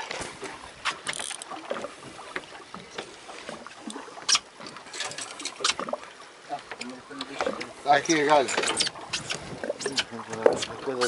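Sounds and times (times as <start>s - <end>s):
water washing against hull: 0.0s - 11.0s
sharp knocks and clicks: 8.3s - 10.8s.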